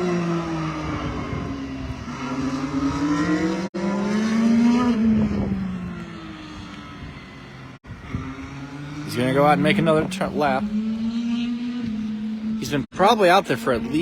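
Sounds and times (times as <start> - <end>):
racing car engine: 0.0 - 14.0.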